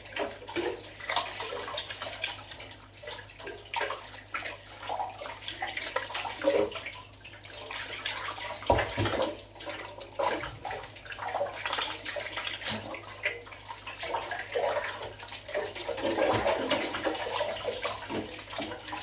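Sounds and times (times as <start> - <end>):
water running and splashing: 0.0 - 19.0.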